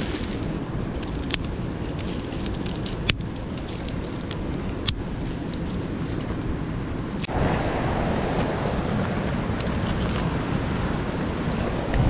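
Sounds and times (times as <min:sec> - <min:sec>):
wood fire popping: 0:00.0 - 0:07.3
mountain stream rushing: 0:00.0 - 0:12.0.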